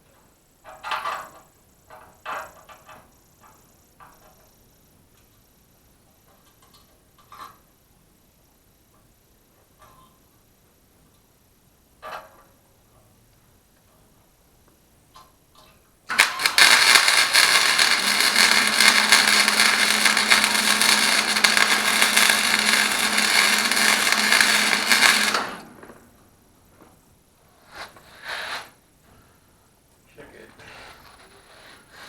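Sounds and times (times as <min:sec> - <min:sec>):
electric welder crackling hiss: 0:16.1 - 0:26.4.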